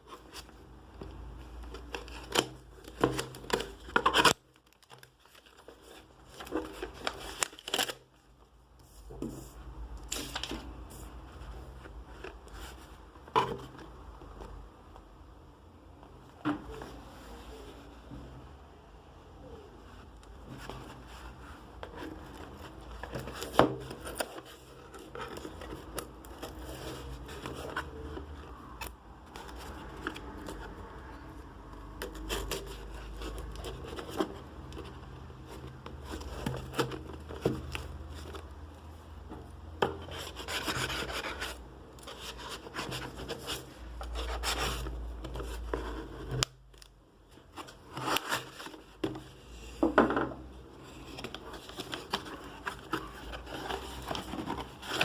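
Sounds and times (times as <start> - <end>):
cardboard and cards rustling: 0.0 - 8.2, 20.0 - 31.0, 31.6 - 55.0.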